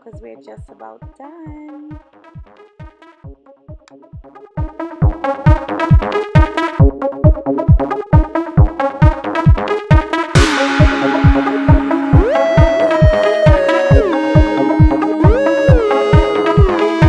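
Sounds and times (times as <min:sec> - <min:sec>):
electronic dance music: 0:04.6 - 0:17.0.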